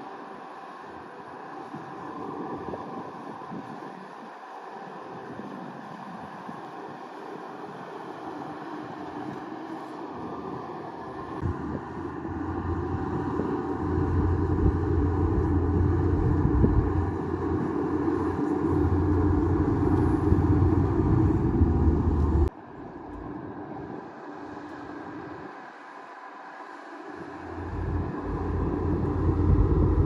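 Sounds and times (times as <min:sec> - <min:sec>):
bulldozer diesel engine running: 0:11.1 - 0:23.3, 0:27.3 - 0:30.0.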